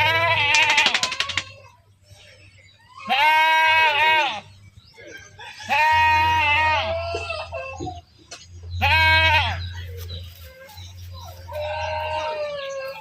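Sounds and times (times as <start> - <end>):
goats bleating: 0.0 - 1.6, 3.0 - 4.5, 5.7 - 7.6, 8.8 - 9.9, 11.4 - 13.0.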